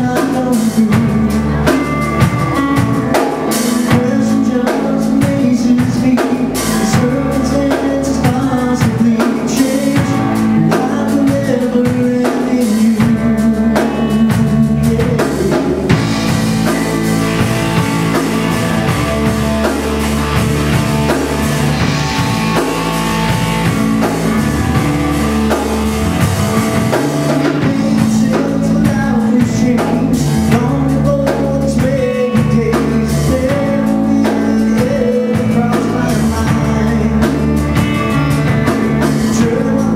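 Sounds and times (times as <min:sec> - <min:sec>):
person singing: 0:00.0 - 0:39.9
rock song with drums and guitar: 0:00.0 - 0:39.9
heavy cymbal wash: 0:15.9 - 0:27.6.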